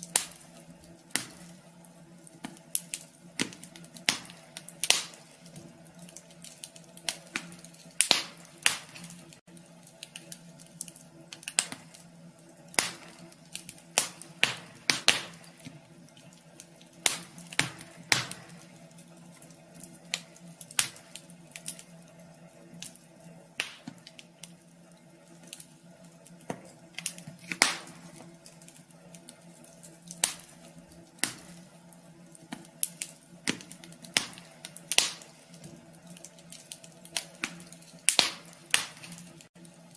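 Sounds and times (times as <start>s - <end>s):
faint steady hum: 0.0s - 39.9s
wood fire crackling: 0.0s - 39.9s.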